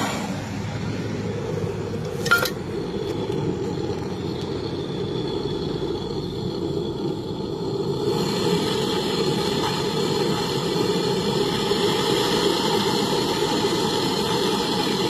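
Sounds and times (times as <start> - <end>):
torch flame burning: 0.0 - 15.0
metallic clink: 2.0 - 2.7.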